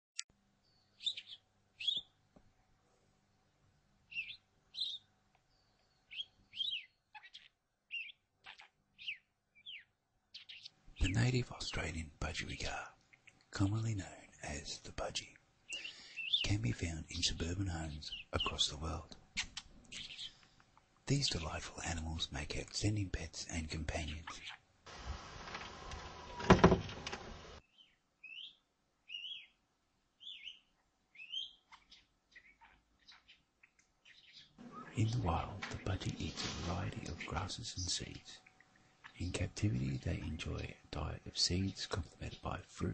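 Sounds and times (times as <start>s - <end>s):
budgerigar chirping: 1.0s - 2.1s, 4.1s - 5.1s, 6.1s - 11.1s, 19.4s - 20.4s, 27.7s - 29.6s, 30.2s - 35.0s.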